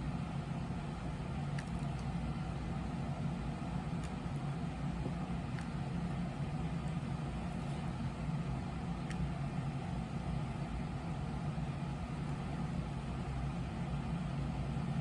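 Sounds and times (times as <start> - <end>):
low mechanical hum: 0.0 - 15.0
faint clicks: 1.5 - 2.2, 9.0 - 9.3.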